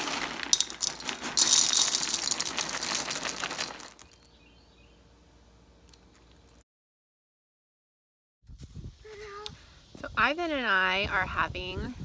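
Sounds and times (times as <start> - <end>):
eggs sizzling in a frying pan: 0.0 - 4.2.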